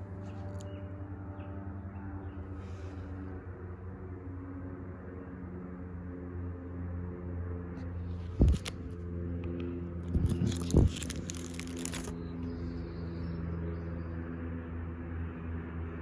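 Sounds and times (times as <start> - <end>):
low mechanical hum: 0.0 - 16.0
crackly rustling: 8.1 - 12.6.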